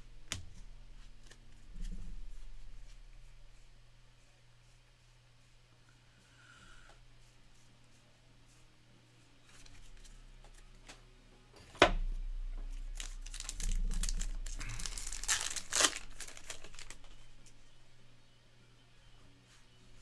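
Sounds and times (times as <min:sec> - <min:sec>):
wrapper snapping: 0:12.7 - 0:17.6
foil wrapper crinkling and tearing: 0:12.8 - 0:17.5.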